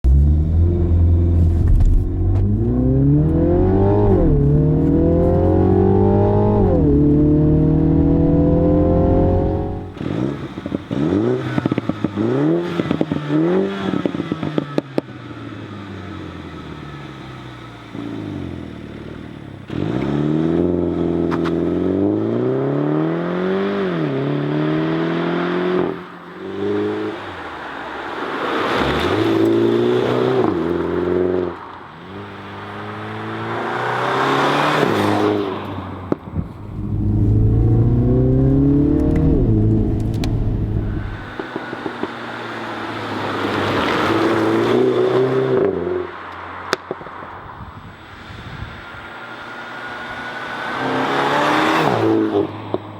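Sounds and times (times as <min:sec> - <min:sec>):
exhaust crackles: 0:00.0 - 0:11.0, 0:36.1 - 0:42.2
car engine revving and accelerating: 0:00.0 - 0:47.0, 0:49.2 - 0:52.8.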